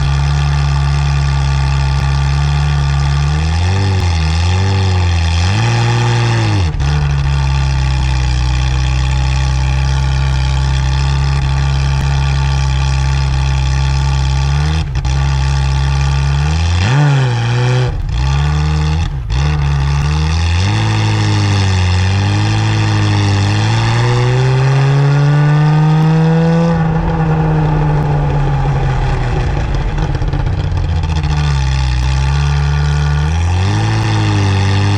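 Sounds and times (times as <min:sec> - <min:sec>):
car engine idling and revving: 0:00.0 - 0:34.9.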